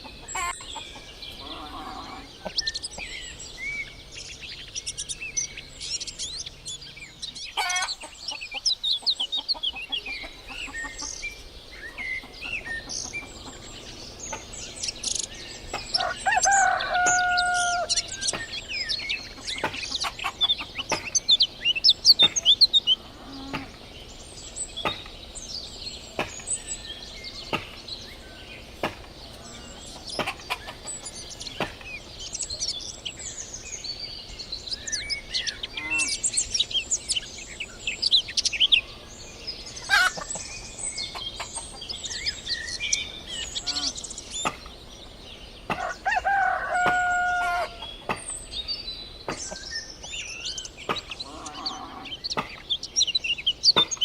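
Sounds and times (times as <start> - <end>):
small birds chirping: 0.0 - 54.0
rooster crowing: 15.9 - 18.1, 45.8 - 47.9.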